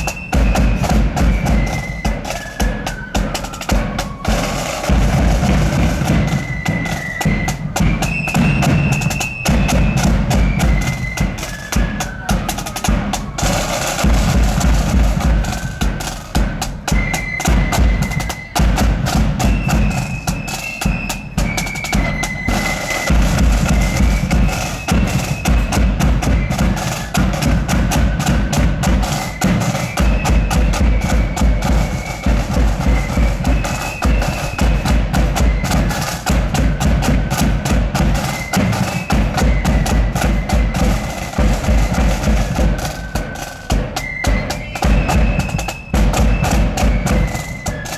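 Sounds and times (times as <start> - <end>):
high flute melody: 0.0 - 47.9
rattling snare drums: 0.0 - 47.9
bass drum beat: 23.1 - 42.9.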